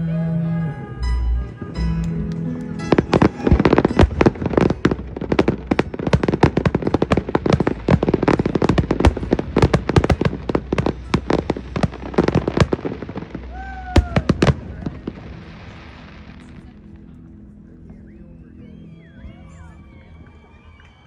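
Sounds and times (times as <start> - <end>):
music: 0.0 - 21.0
fireworks cracking and banging: 2.0 - 17.0.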